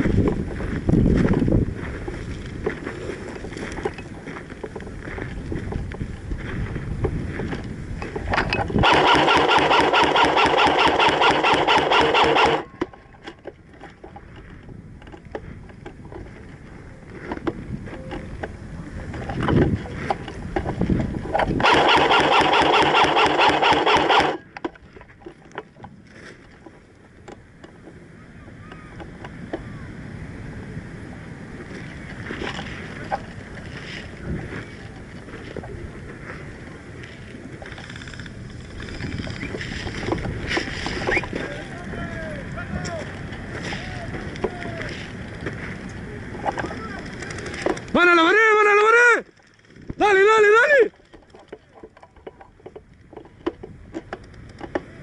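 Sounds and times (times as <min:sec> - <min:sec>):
wind noise on microphone: 0:00.0 - 0:55.0
airsoft gun full-auto bursts: 0:08.8 - 0:12.7, 0:21.6 - 0:24.4.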